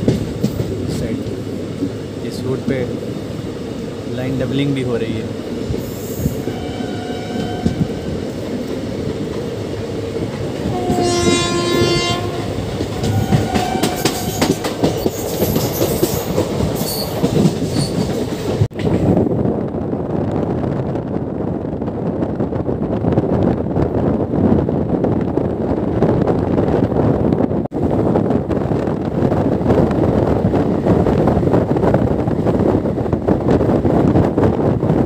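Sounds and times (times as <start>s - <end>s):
train coaches rattling: 0.0s - 19.2s
train horn blasts: 6.4s - 8.1s, 10.7s - 14.6s.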